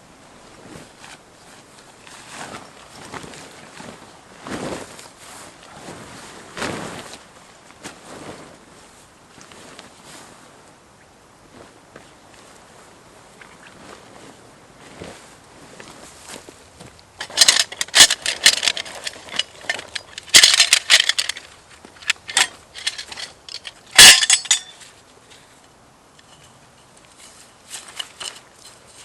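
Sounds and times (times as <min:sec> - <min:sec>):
gear rattling and clinking: 0:17.2 - 0:24.9, 0:27.1 - 0:29.0.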